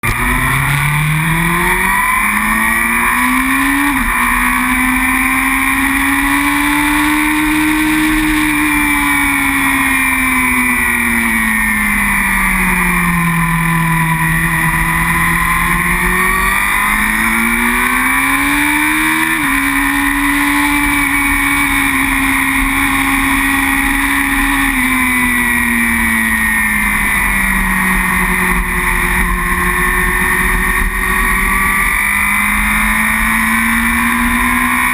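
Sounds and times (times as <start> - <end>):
superbike engine revving: 0.0 - 34.9.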